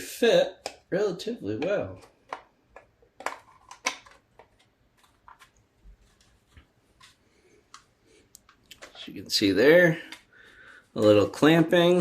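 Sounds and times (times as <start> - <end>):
plastic parts clicking and knocking: 0.6 - 0.9, 1.6 - 5.6.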